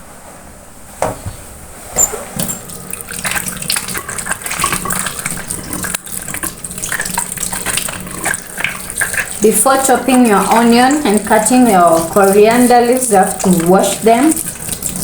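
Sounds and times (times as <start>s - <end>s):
tap water running and splashing: 2.3s - 15.0s.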